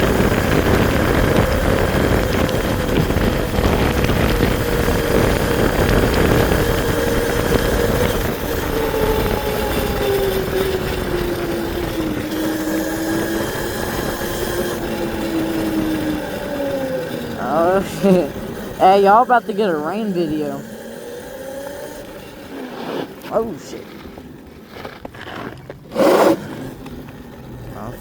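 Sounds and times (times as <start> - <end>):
wind noise on microphone: 0.0 - 17.4
electric bike motor whining: 0.0 - 18.8, 20.6 - 23.2.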